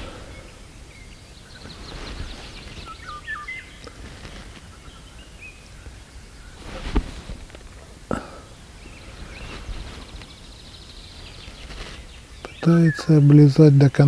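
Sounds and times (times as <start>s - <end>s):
whistled bird notes: 0.0s - 4.0s, 8.8s - 13.4s
songbirds chirping: 0.0s - 14.0s.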